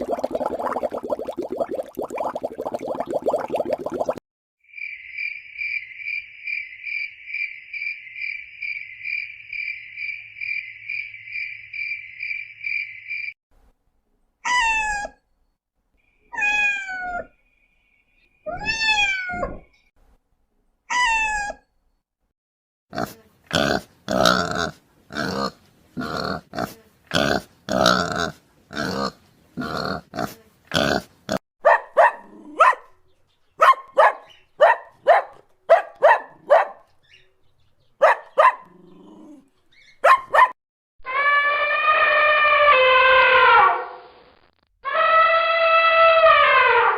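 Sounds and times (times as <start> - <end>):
cat meowing: 14.5 - 15.2, 16.3 - 17.3, 18.5 - 19.6, 20.9 - 21.6
dog barking and yipping: 31.6 - 33.0, 33.6 - 36.9, 38.0 - 40.6.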